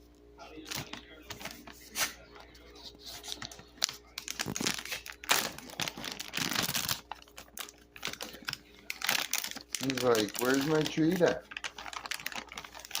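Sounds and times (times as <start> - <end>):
plastic treat bag crinkling: 0.5 - 13.0.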